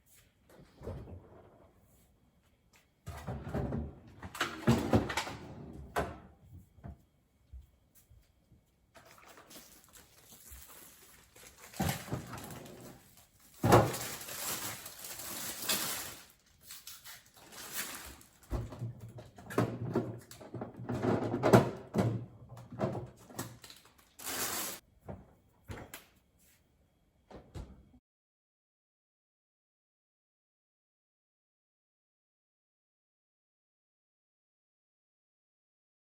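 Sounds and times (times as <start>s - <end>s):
packaging rustling: 9.0s - 18.5s, 23.5s - 24.8s
groceries knocking and clattering: 9.0s - 25.9s.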